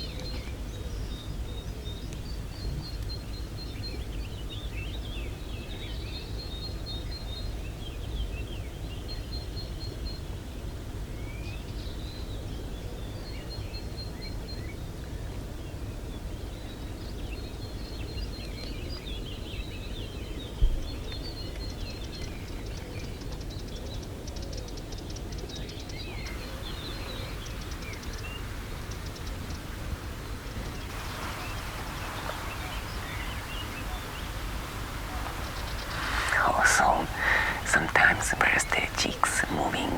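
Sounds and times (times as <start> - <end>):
small birds chirping: 25.6 - 39.9
low outdoor rumble: 26.3 - 39.2.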